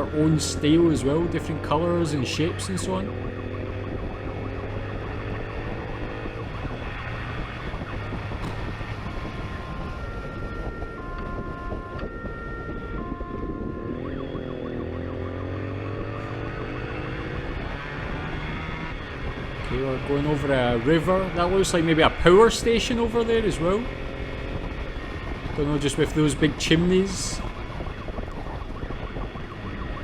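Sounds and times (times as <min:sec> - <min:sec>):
motorcycle engine running: 0:00.0 - 0:30.0
police siren wailing: 0:00.0 - 0:30.0.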